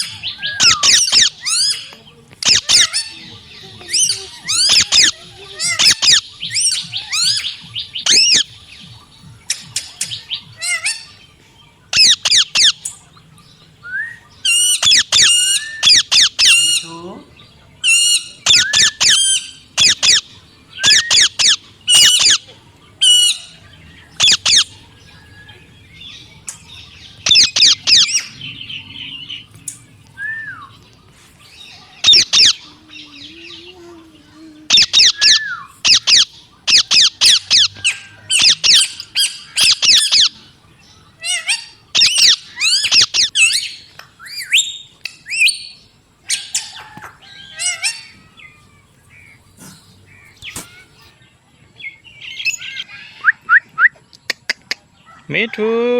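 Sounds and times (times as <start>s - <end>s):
parrot squawking: 0.0s - 8.5s, 11.9s - 12.8s, 14.5s - 17.0s, 17.8s - 23.6s, 24.2s - 25.3s, 26.0s - 29.6s, 30.2s - 40.4s, 41.1s - 45.7s, 46.3s - 48.9s.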